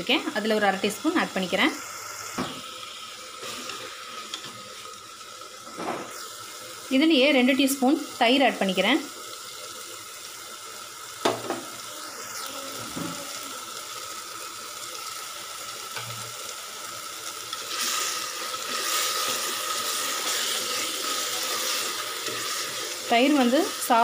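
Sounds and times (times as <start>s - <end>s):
masala sizzling in a pot: 0.0s - 24.0s
spatula stirring: 17.5s - 24.0s.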